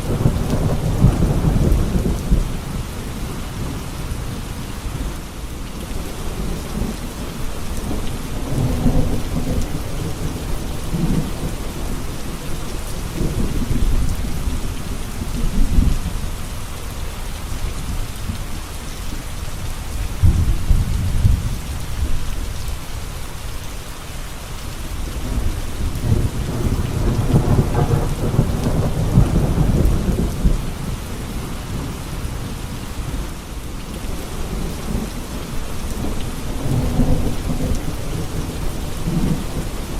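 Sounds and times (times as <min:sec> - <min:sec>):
steady rain: 0:00.0 - 0:39.9
thunder rumbling: 0:06.0 - 0:16.4, 0:20.1 - 0:22.6, 0:25.2 - 0:39.9.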